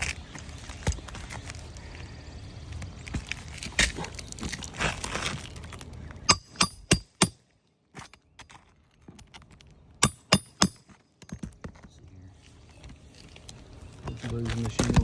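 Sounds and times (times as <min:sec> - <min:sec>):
hammer clinking on steel: 0:06.3 - 0:07.4, 0:10.0 - 0:11.4.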